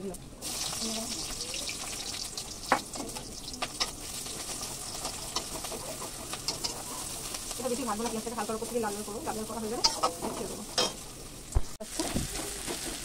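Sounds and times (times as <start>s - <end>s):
onion sizzling in hot oil: 0.0s - 13.0s
metal spatula clinking on pan: 9.8s - 11.0s.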